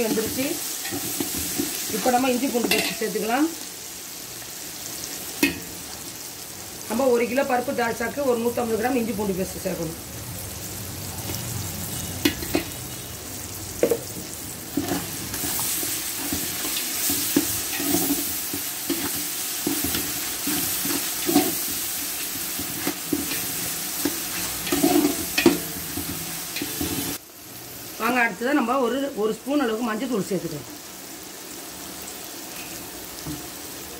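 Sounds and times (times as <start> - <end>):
meat sizzling in oil: 0.0 - 33.9
metal ladle knocking on pot: 13.8 - 14.1.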